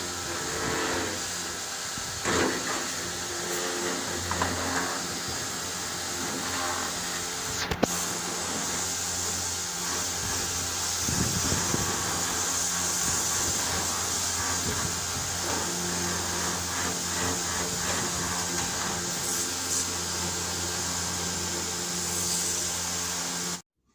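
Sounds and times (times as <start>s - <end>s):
steady hiss: 0.0s - 23.6s.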